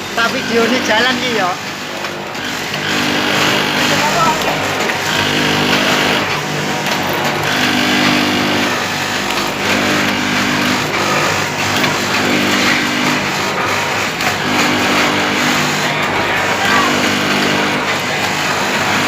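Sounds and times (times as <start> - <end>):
packing machine motor hum: 0.0 - 19.0
rhythmic mechanical clatter: 0.0 - 19.0.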